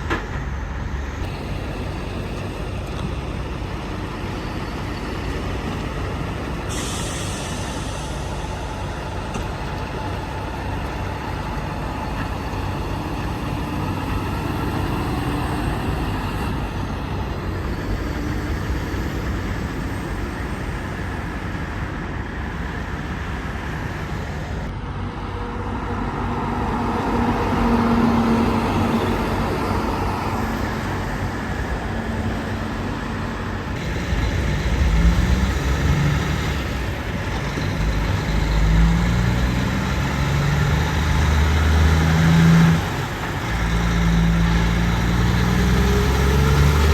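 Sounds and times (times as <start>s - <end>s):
deep heavy engine rumble: 0.0s - 46.9s
trucks and cars driving past: 0.0s - 46.9s.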